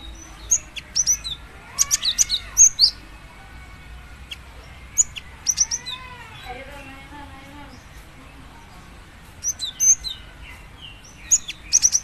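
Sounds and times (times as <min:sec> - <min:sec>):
bird calling with sharp chirps: 0:00.0 - 0:03.1, 0:04.0 - 0:08.1, 0:09.4 - 0:12.0.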